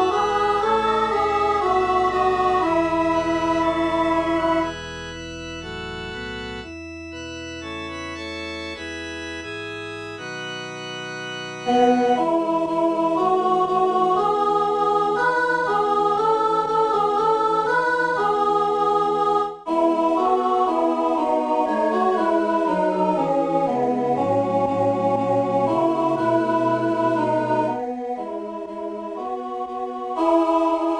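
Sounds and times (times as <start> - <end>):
wavering melody: 0.0 - 4.8, 21.5 - 27.8
organ hymn chords: 0.0 - 18.7, 19.7 - 30.9.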